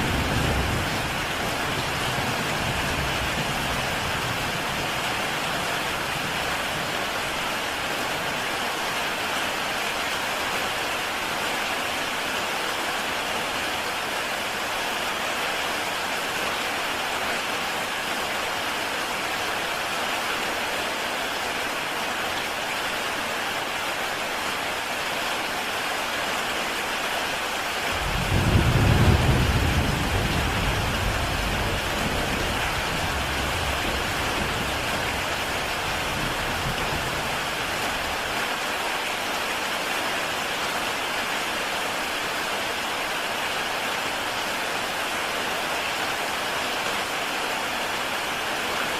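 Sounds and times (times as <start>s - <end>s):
low rumble of thunder: 0.0s - 5.5s, 28.0s - 37.9s
heavy rain on a tile roof: 0.0s - 48.9s.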